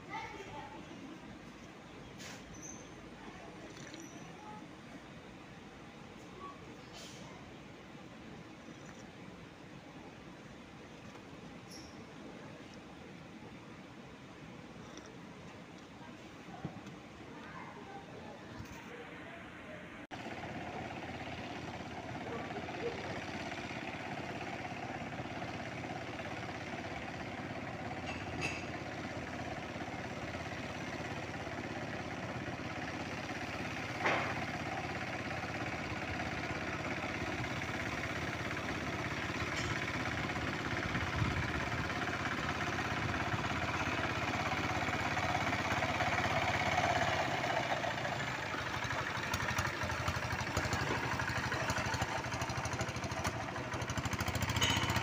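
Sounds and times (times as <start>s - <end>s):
tractor engine running: 20.1s - 55.0s.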